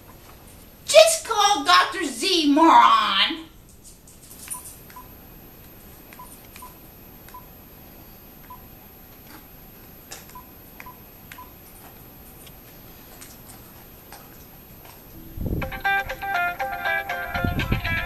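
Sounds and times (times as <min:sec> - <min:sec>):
phone keypad beeping: 0:04.5 - 0:05.2, 0:06.1 - 0:07.5.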